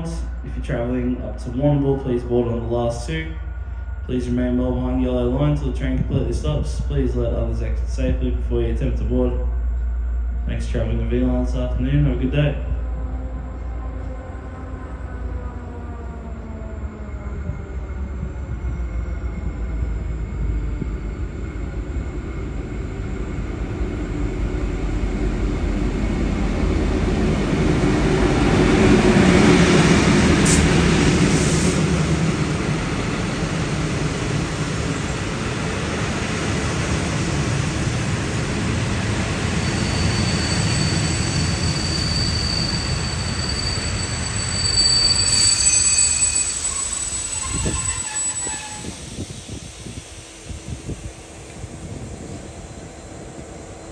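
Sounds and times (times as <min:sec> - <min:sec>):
diesel train rumble: 0:00.0 - 0:53.9
high-pitched wheel squeal: 0:39.6 - 0:50.0.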